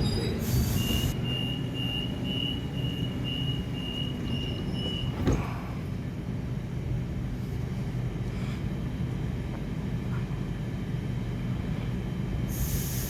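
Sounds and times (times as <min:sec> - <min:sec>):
high pulsing beep: 0:00.0 - 0:05.2
electric train humming: 0:00.0 - 0:13.0
air hiss: 0:00.4 - 0:01.2, 0:12.5 - 0:13.0.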